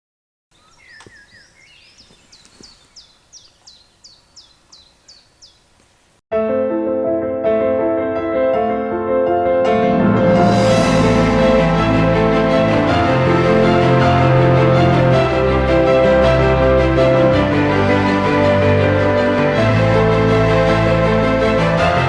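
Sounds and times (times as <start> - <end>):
quiet forest background: 0.5 - 6.2
songbird singing: 0.5 - 6.2
music with sustained chords: 9.7 - 22.0.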